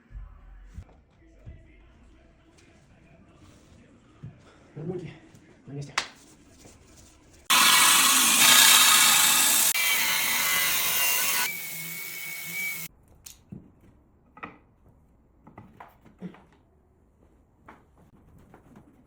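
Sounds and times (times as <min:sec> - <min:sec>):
power tool running: 0:07.5 - 0:12.9.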